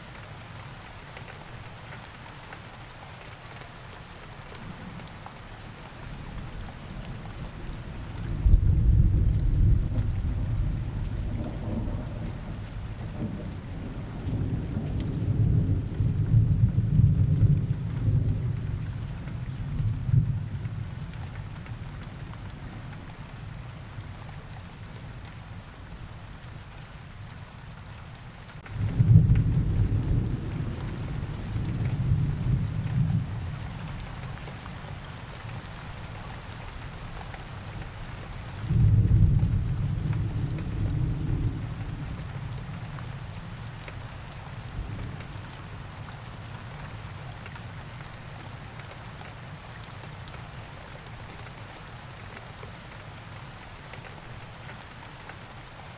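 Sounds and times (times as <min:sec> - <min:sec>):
steady rain: 0:00.0 - 0:55.9
low thunder rolls: 0:08.2 - 0:18.5, 0:28.7 - 0:33.4, 0:38.7 - 0:42.7.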